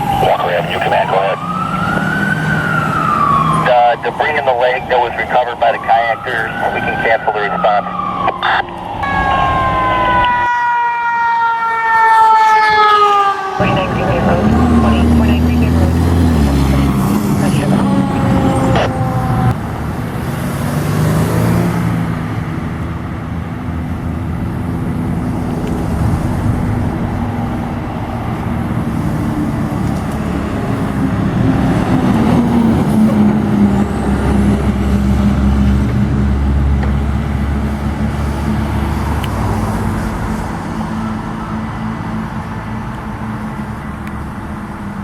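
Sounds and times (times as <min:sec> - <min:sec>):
heavy vehicle engine running: 0:13.6 - 0:20.4, 0:21.4 - 0:45.0.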